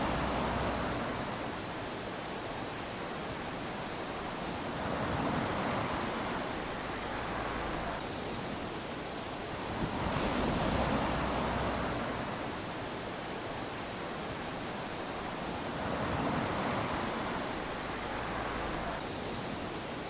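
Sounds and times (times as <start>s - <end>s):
small waves lapping on sand: 0.0s - 20.0s.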